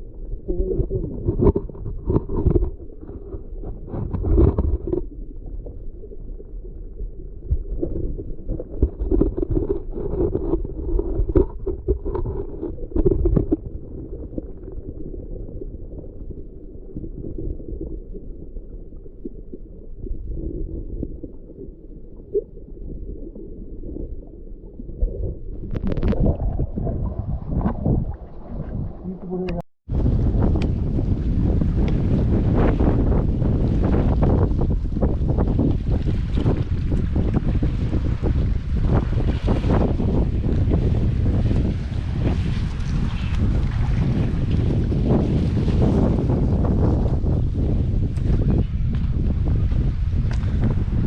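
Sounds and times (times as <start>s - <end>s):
muffled underwater sea water gurgling: 0.0s - 51.0s.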